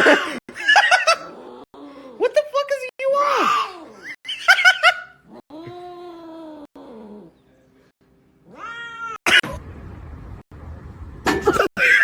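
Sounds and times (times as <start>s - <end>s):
cat meowing: 8.5s - 9.2s.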